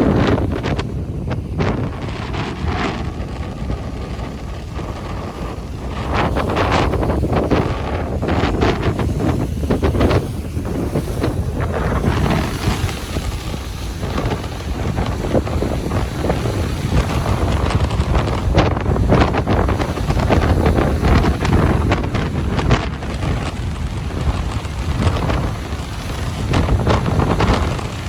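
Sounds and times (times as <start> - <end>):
ocean waves breaking on beach: 0.0 - 28.0
wind buffeting microphone: 0.0 - 28.0.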